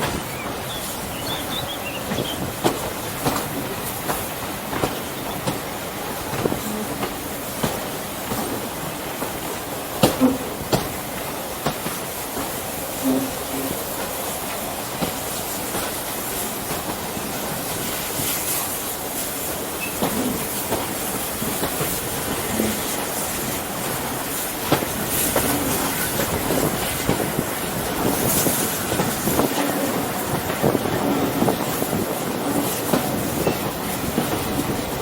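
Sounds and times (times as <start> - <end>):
train wheels rolling on rails: 0.0 - 35.0
clicks from rail joints: 2.1 - 5.6.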